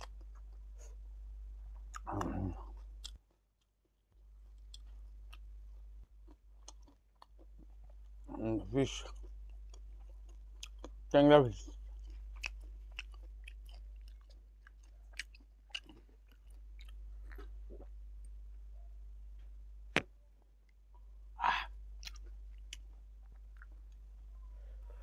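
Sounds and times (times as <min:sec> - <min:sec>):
low steady hum: 0:00.0 - 0:25.0
chewing and wet mouth clicks: 0:01.7 - 0:03.2, 0:06.2 - 0:08.2, 0:09.1 - 0:11.0, 0:11.6 - 0:17.9, 0:22.0 - 0:24.1.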